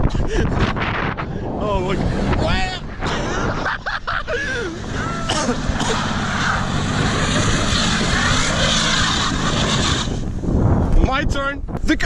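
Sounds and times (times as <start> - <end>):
truck engine running: 1.5 - 10.5.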